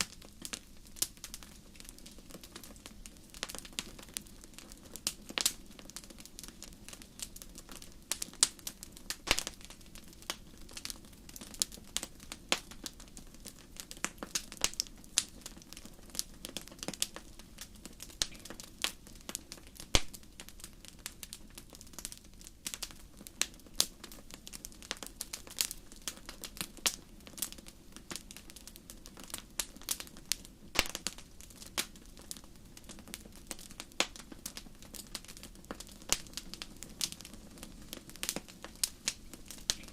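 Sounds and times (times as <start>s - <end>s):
campfire crackling and popping: 0.0s - 39.9s
low hum of burning fire: 0.0s - 39.9s.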